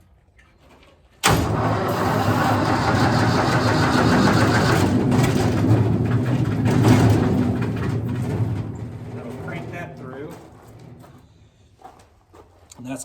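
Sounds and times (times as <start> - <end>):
wood chipper engine running: 1.2 - 11.2.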